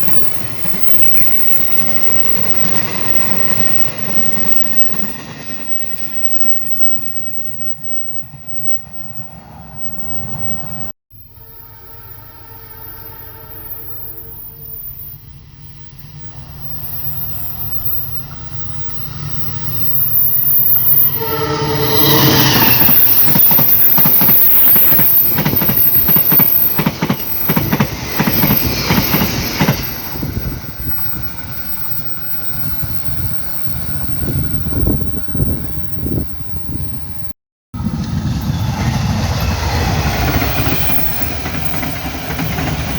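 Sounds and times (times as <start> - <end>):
train horn blast: 11.3 - 15.0, 21.0 - 23.3
train wheels clattering over rails: 22.1 - 32.0, 38.1 - 42.9.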